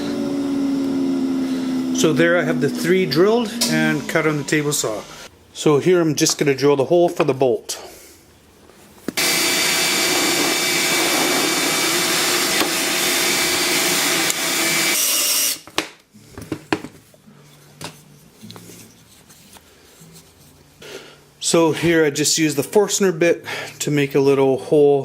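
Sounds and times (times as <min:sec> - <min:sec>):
electric drill boring wood: 0:00.0 - 0:05.3, 0:09.2 - 0:15.6.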